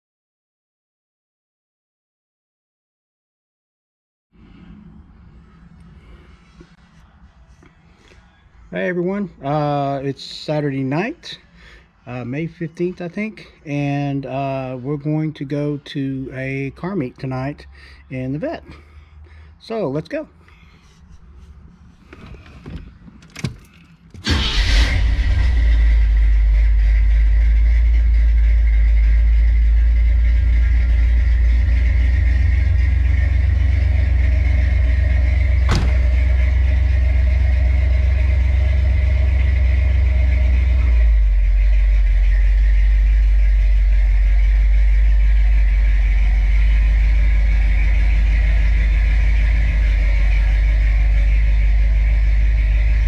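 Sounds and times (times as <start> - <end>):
car engine starting and idling: 21.3 - 53.0
knocks: 35.7 - 36.1.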